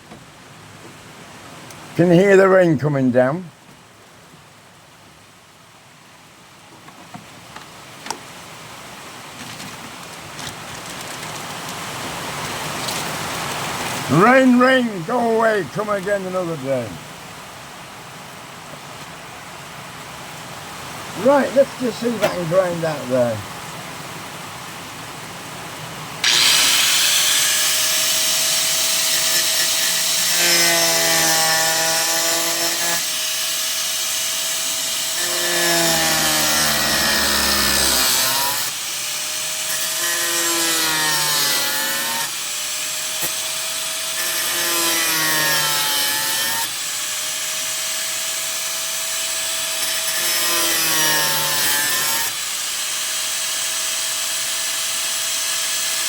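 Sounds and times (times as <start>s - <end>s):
power grinder cutting sheet steel: 26.2s - 56.0s.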